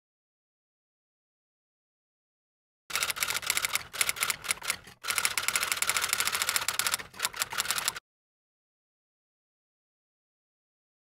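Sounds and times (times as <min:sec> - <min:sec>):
typewriter keys clacking: 0:02.9 - 0:08.0.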